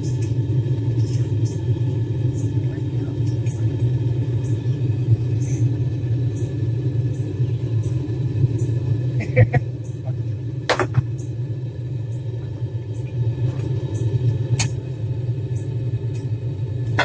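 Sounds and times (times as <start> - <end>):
gas forge burner rumbling: 0.0 - 17.0.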